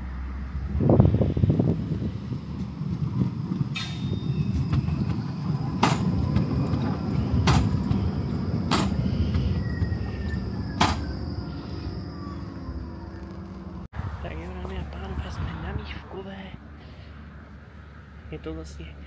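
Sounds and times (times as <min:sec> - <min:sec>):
vehicle running rumble: 0:00.0 - 0:19.0
faint falling whine: 0:03.9 - 0:13.9.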